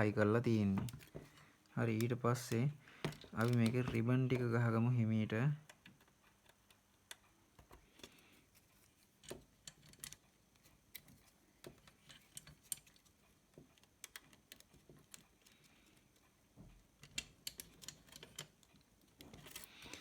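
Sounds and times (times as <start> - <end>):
small clicks and taps: 5.6 - 20.0.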